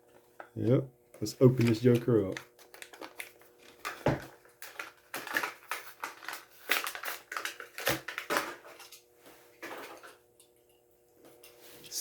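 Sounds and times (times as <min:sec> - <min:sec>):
plastic packaging tearing: 0:01.4 - 0:08.8.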